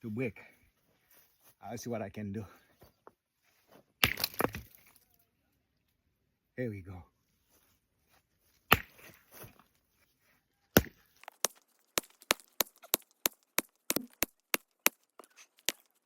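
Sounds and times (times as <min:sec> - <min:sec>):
tool striking stone: 0:04.0 - 0:04.8, 0:08.7 - 0:09.2, 0:10.8 - 0:15.9.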